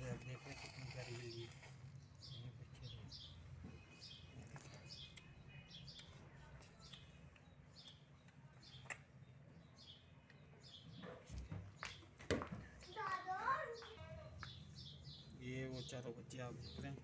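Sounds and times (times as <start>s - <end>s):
faint bird chirping: 0.0s - 12.2s, 12.8s - 17.0s.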